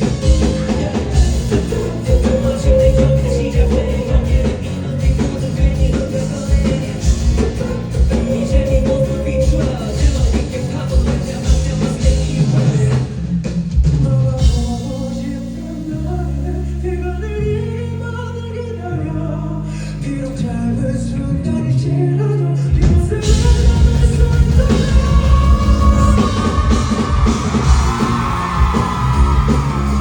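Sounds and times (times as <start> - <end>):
live rock band playing: 0.0 - 16.4, 22.8 - 30.0.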